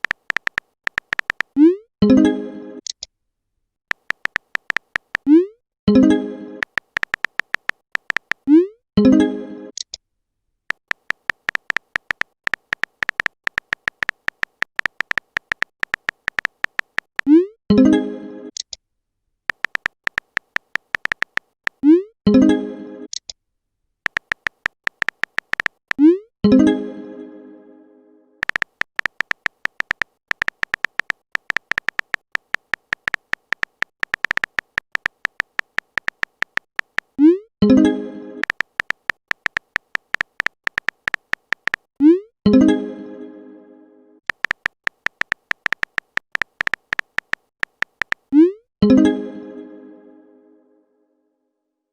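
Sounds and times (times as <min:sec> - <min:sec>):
phone keyboard typing clicks: 0:00.0 - 0:01.8, 0:03.9 - 0:05.4, 0:06.6 - 0:08.6, 0:10.7 - 0:17.4, 0:19.5 - 0:21.9, 0:24.1 - 0:26.1, 0:28.4 - 0:37.2, 0:38.4 - 0:41.9, 0:44.3 - 0:48.4
short electronic typing beeps: 0:24.1 - 0:26.2, 0:28.4 - 0:37.4, 0:44.3 - 0:48.6.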